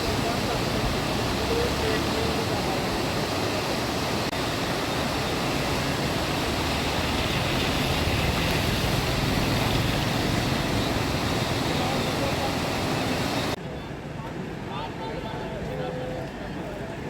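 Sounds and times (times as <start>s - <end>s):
river rushing: 0.0s - 13.6s.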